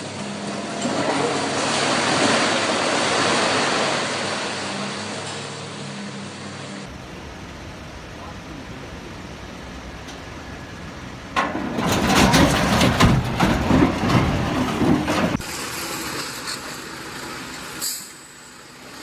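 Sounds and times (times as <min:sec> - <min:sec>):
vehicle engine rumble: 0:00.0 - 0:19.0
rough rumbling with crackles: 0:10.6 - 0:17.8.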